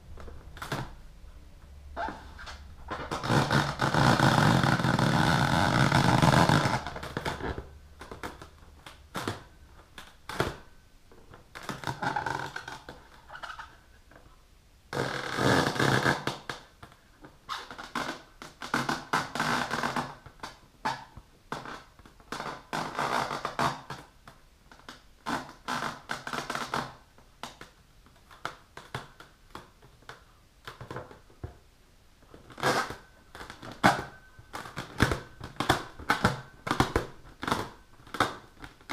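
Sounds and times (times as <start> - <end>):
fingernails scratching a balloon: 2.0 - 7.6, 15.0 - 16.6, 32.5 - 38.9.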